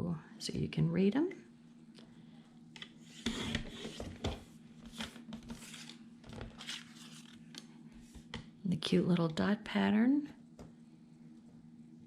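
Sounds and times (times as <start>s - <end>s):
paper rustling: 4.8s - 7.4s.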